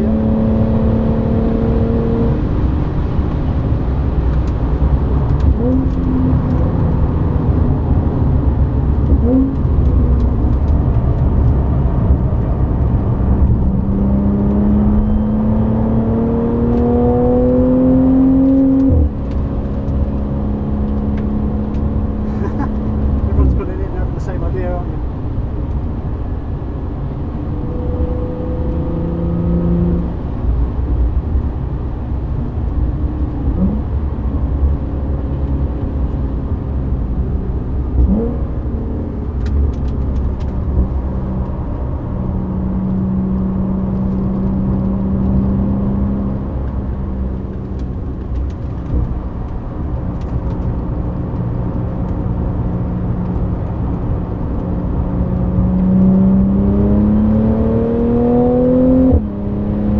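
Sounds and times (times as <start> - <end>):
car engine accelerating: 0.0 - 31.5, 32.1 - 59.9
road rumble: 0.0 - 59.9.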